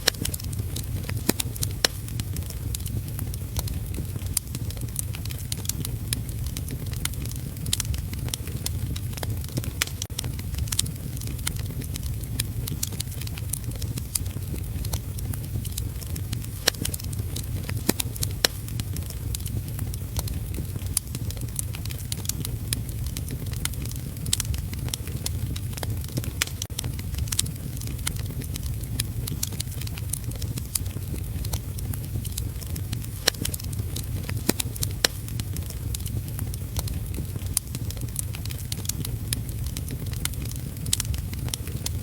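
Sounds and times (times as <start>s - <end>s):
wood fire crackling: 0.0s - 42.0s.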